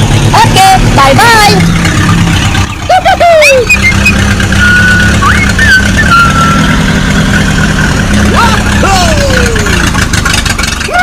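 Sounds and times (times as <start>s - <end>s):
tractor engine humming: 0.0s - 11.0s
high held tone: 2.9s - 7.3s.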